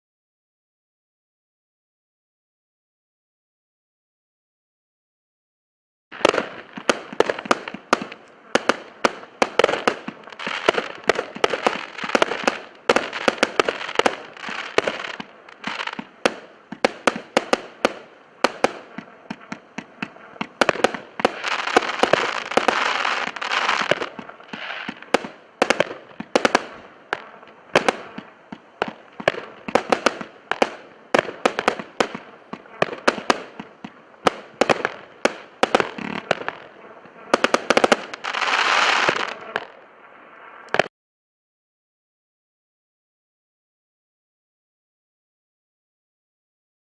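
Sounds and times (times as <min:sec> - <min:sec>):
firework crackle: 0:06.1 - 0:40.9
firework launch thumps and bursts: 0:06.2 - 0:39.6.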